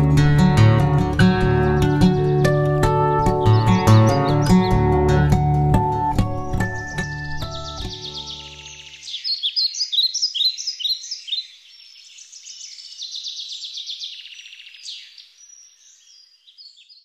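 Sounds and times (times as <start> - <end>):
guitar chord: 0.0 - 8.6
songbirds singing: 0.0 - 17.0.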